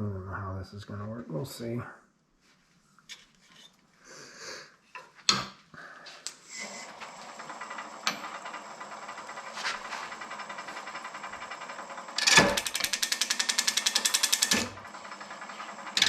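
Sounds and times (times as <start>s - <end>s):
wood lathe running: 6.5s - 16.0s.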